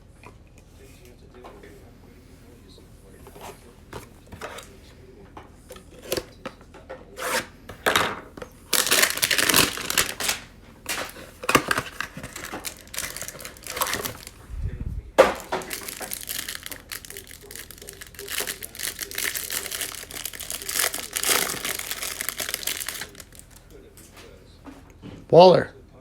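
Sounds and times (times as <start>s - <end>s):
cardboard box tearing: 7.2s - 7.5s, 8.7s - 14.3s, 15.4s - 23.5s
cards being handled: 7.2s - 14.4s, 15.2s - 23.8s
wrapper crinkling: 8.7s - 14.4s, 15.2s - 23.8s.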